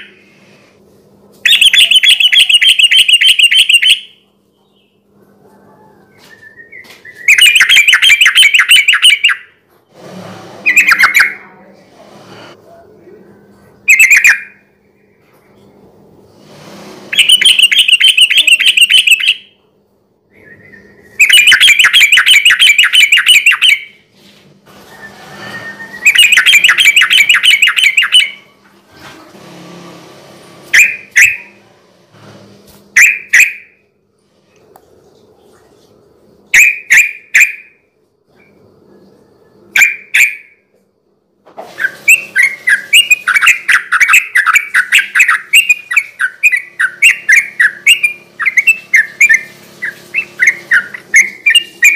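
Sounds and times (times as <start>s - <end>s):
bulbul singing: 1.4s - 5.0s, 6.4s - 9.5s, 13.8s - 14.6s, 17.1s - 19.6s, 20.3s - 24.0s, 25.8s - 28.5s, 42.1s - 51.9s.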